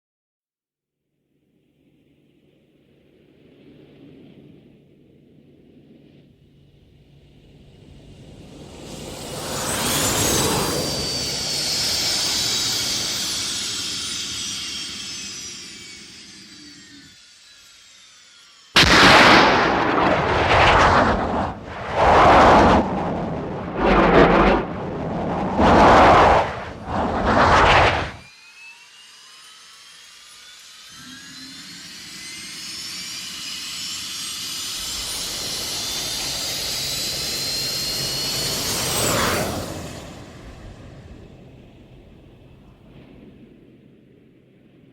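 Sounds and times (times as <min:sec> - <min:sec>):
jet whine: 0:08.0 - 0:17.0, 0:18.8 - 0:28.3
short loud thruster blasts: 0:18.8 - 0:28.2.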